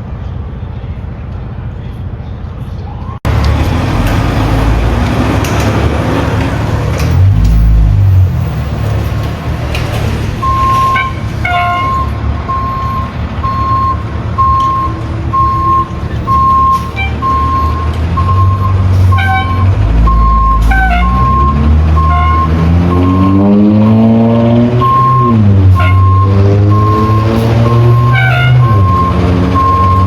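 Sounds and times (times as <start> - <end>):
diesel engine running: 0.0 - 30.0
backup alarm beeping: 10.4 - 23.4, 24.8 - 30.0.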